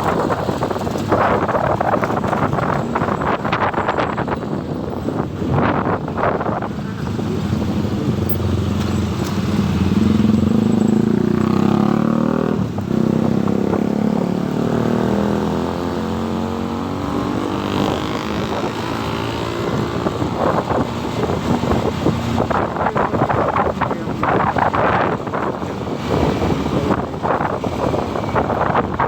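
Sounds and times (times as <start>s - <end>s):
wind buffeting microphone: 0.0s - 29.0s
motorcycle engine running: 6.7s - 29.0s.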